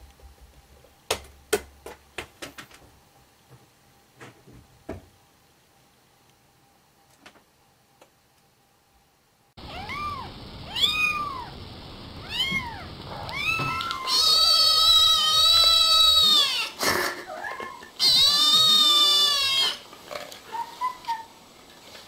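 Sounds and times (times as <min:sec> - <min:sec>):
cat meowing: 0:09.6 - 0:11.6, 0:12.2 - 0:16.8, 0:17.4 - 0:19.8.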